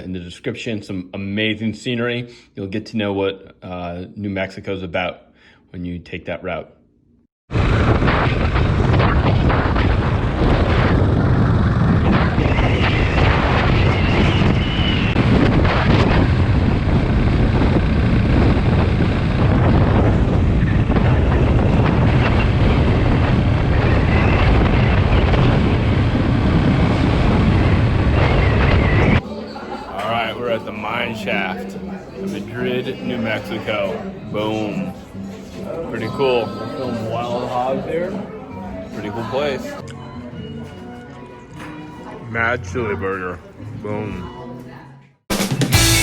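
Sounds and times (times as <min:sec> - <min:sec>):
wind buffeting microphone: 0:07.5 - 0:29.2.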